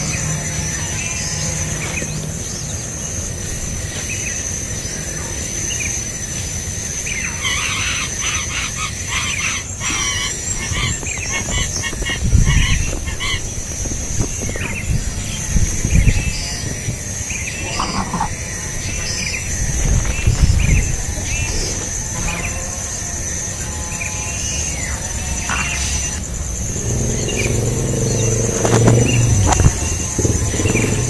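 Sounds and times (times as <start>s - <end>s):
high-pitched insect drone: 0.0s - 31.0s
bird calls: 7.0s - 31.0s.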